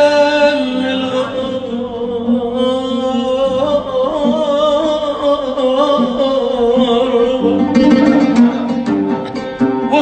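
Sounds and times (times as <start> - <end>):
oud accompaniment: 0.0 - 10.0.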